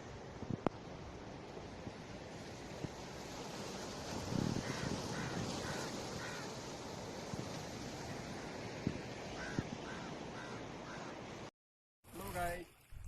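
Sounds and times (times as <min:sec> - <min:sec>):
river rushing: 0:03.1 - 0:07.2.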